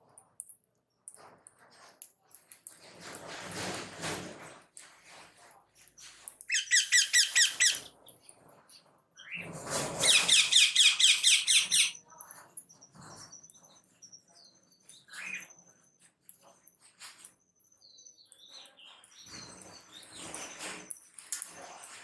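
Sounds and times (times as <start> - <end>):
cage birds chirping: 5.8 - 21.3.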